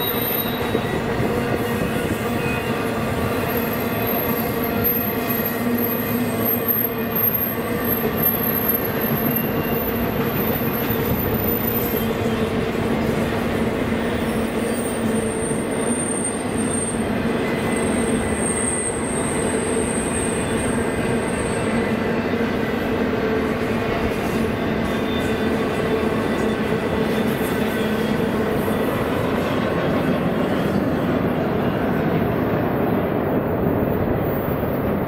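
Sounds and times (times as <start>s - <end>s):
high wheel squeal: 0.0s - 12.4s, 14.6s - 21.8s
freight train wheels rumbling: 0.0s - 35.0s.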